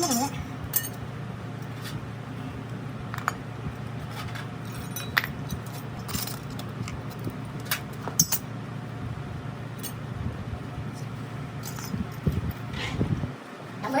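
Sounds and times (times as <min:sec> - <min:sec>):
small metal parts clinking: 0:00.0 - 0:01.0, 0:04.1 - 0:08.5, 0:11.6 - 0:12.7
steady low hum: 0:00.0 - 0:14.0.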